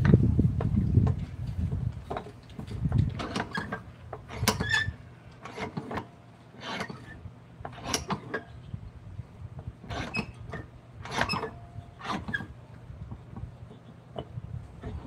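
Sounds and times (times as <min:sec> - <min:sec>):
hand tools scraping wood: 0:02.1 - 0:08.6, 0:09.8 - 0:12.6.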